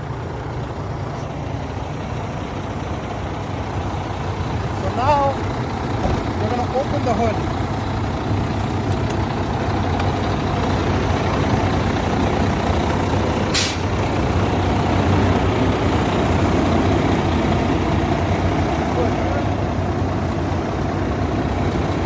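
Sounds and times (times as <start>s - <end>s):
diesel truck engine idling: 0.0s - 22.0s
sharp hiss: 13.5s - 14.0s.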